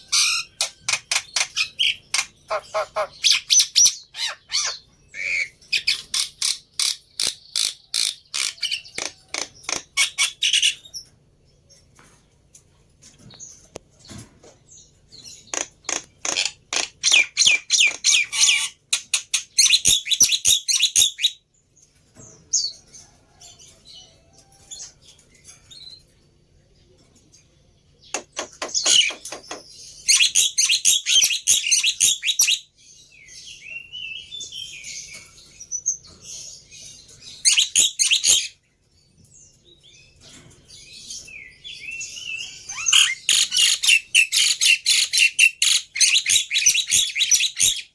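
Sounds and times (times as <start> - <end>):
bird harsh chattering: 0.2 - 10.8.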